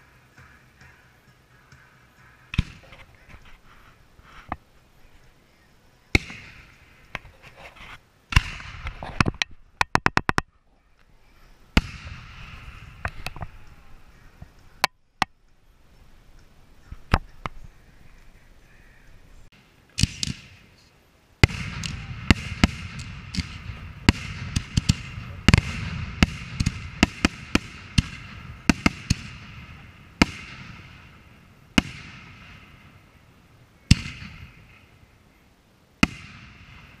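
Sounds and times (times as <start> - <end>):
rolling echo: 6.0 - 7.3, 11.4 - 35.3, 36.0 - 37.0
firework shells bursting: 21.4 - 35.0.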